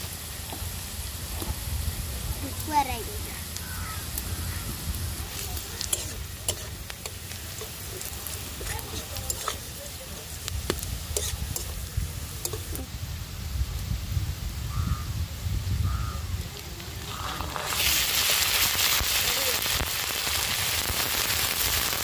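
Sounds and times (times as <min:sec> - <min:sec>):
vegetables sizzling in oil: 0:00.0 - 0:22.0
metal spatula scraping a wok: 0:05.3 - 0:12.8.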